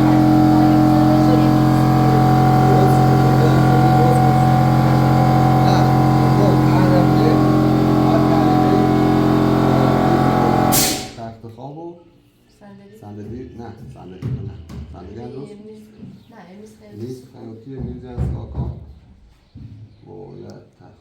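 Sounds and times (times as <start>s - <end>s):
engine droning steadily: 0.0s - 11.4s.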